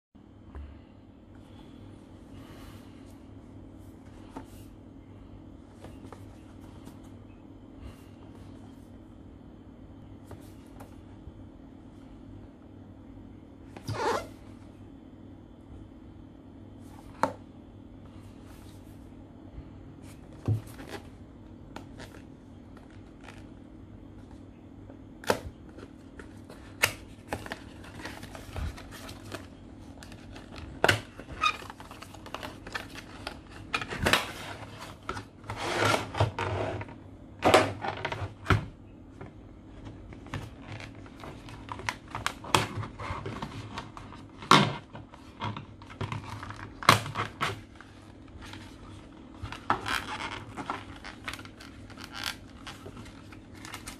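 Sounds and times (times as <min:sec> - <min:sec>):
packaging rustling: 0:25.7 - 0:36.2, 0:45.1 - 0:53.9.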